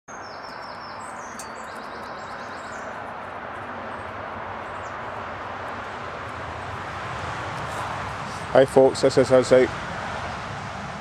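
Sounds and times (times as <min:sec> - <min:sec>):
small songbird singing: 0:00.1 - 0:03.3.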